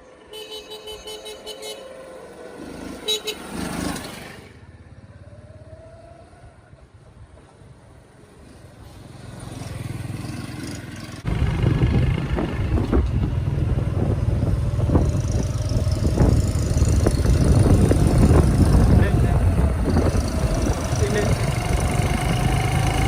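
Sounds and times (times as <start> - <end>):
motorcycle engine rumbling: 8.4 - 23.0.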